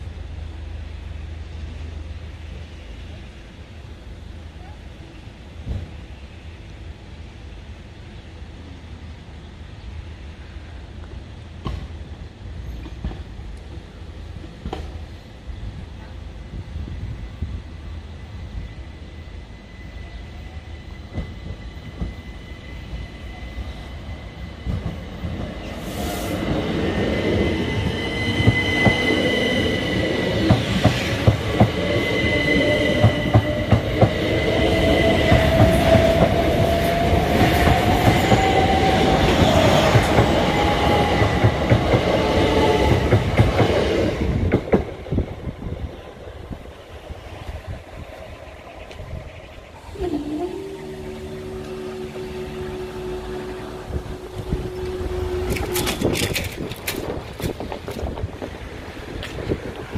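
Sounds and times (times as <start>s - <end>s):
electric train whine: 0.0s - 59.9s
wheels clattering over rail joints: 55.2s - 58.5s.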